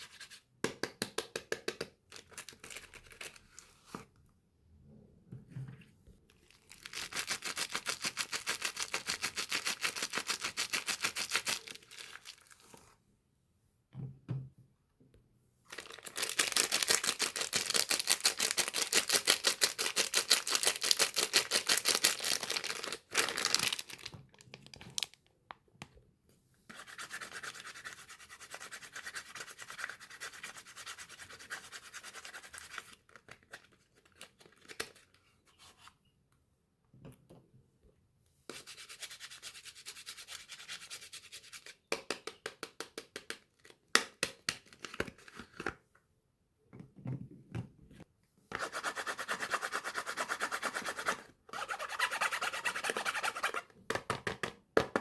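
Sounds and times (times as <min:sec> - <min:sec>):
scratching on soap wrappings: 0:15.7 - 0:25.2.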